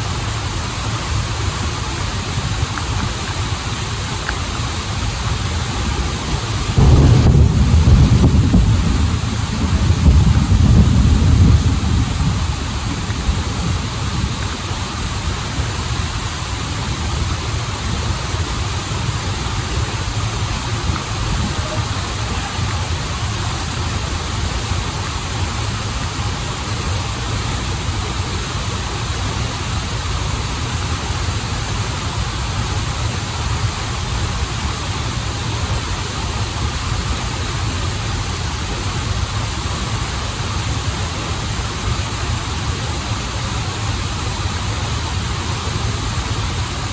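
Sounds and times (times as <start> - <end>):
waterfall and river rushing: 0.0 - 46.9
deep low rumble: 6.8 - 14.5.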